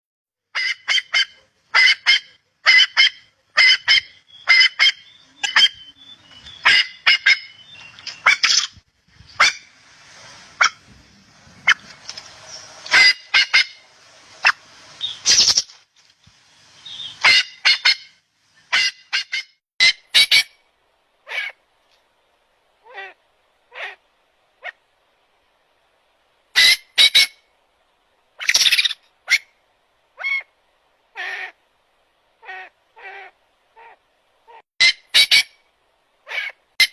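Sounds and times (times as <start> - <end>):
bird calling sharply: 11.6 - 13.8.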